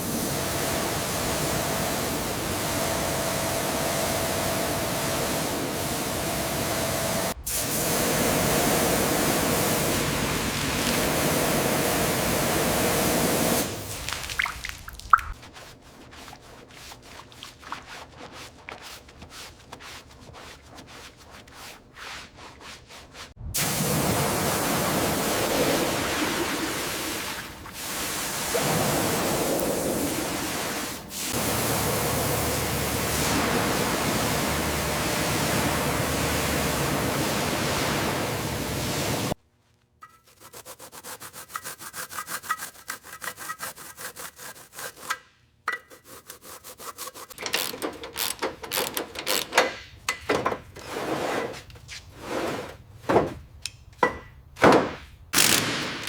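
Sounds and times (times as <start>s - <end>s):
hand rubbing strokes: 15.2s - 23.4s, 40.0s - 45.2s.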